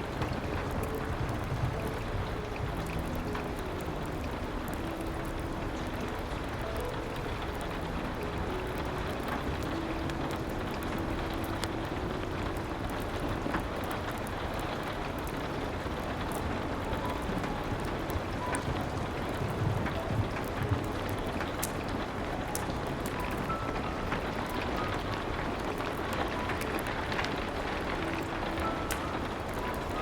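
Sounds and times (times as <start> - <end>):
rain: 0.0 - 30.0.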